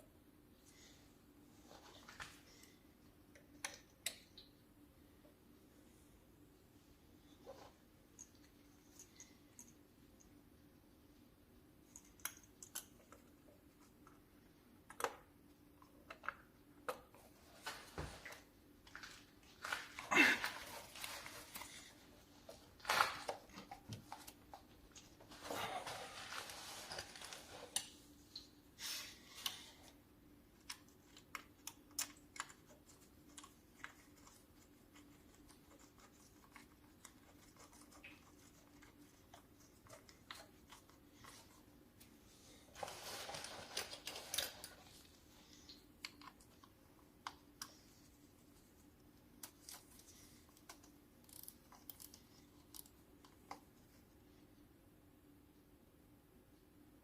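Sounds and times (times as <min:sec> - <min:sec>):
scraping or rustling: 0:25.2 - 0:27.8.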